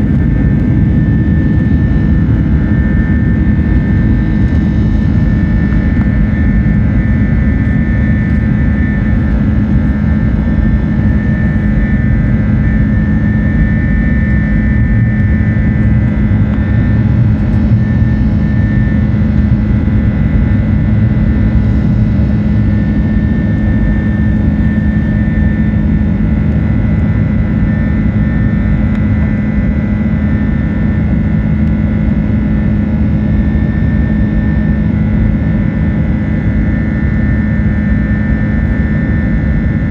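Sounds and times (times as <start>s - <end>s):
jet cabin engine drone: 0.0s - 39.9s.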